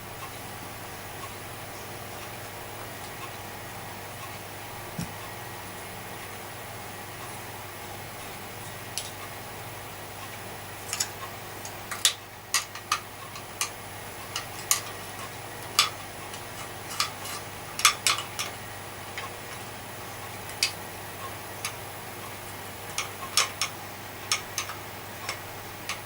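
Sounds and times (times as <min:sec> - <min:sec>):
small hard parts clicking: 0:10.9 - 0:18.6, 0:22.9 - 0:26.0.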